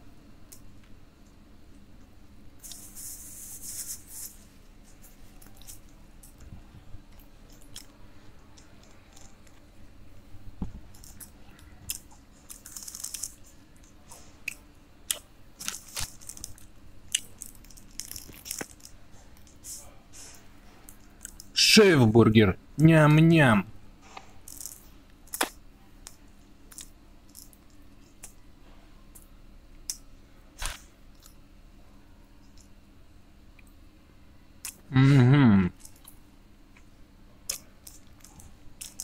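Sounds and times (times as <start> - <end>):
man chewing food: 2.0 - 9.9, 10.6 - 21.5, 37.5 - 39.0.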